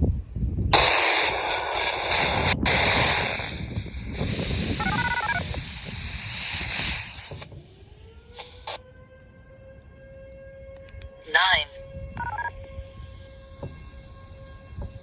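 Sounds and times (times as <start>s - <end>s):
siren winding up: 4.2s - 15.0s.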